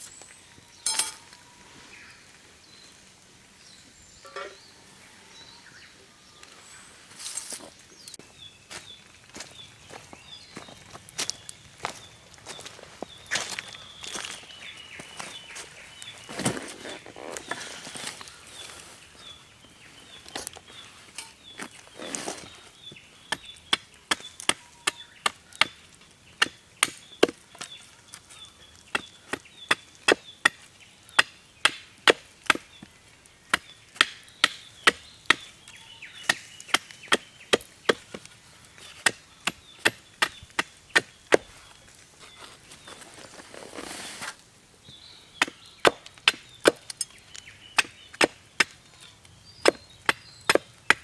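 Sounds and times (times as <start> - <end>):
firewood being chopped: 22.8 - 43.0, 44.2 - 51.0.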